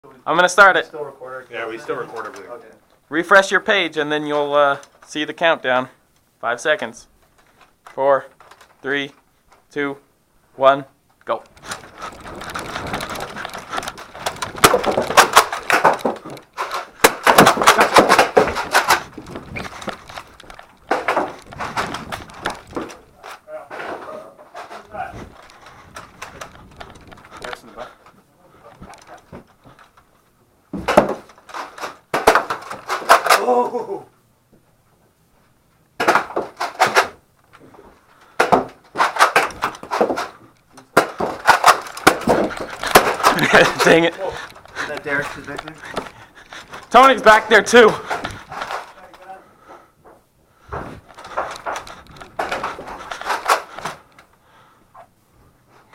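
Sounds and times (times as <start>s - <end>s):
rustling: 0.8s - 33.5s, 34.6s - 55.9s
knocks and clatter: 11.5s - 30.1s, 30.7s - 33.4s, 38.3s - 49.0s, 50.1s - 54.3s.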